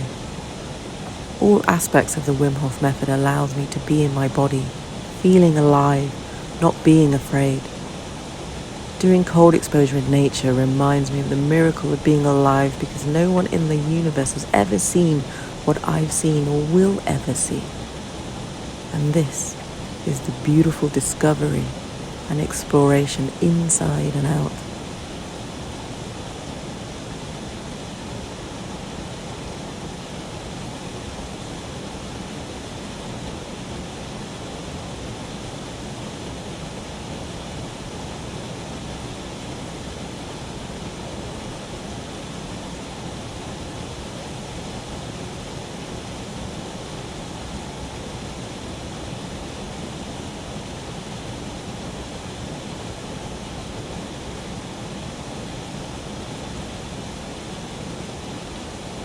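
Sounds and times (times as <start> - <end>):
flowing water rushing: 0.0 - 59.0.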